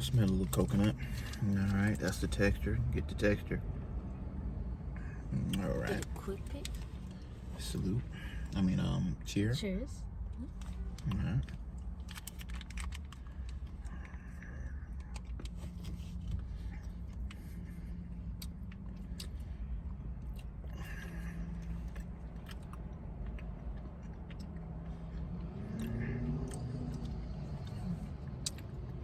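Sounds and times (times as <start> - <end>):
steady low hum: 0.0 - 29.0
person chewing: 10.6 - 29.0.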